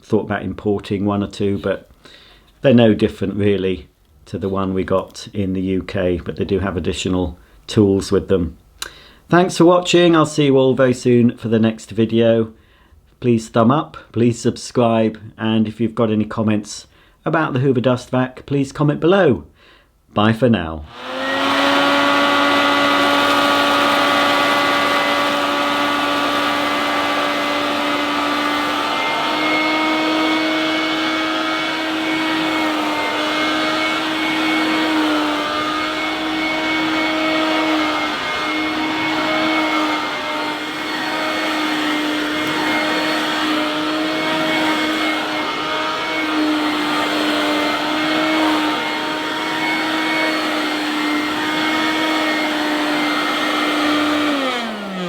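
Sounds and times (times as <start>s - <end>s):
hand-held vacuum cleaner whine: 20.9s - 55.0s.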